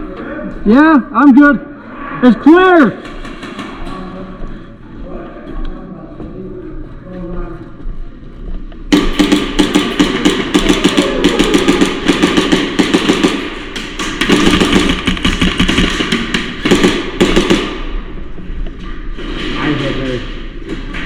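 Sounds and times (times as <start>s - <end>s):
airsoft guns firing: 3.0s - 4.1s, 8.9s - 18.2s.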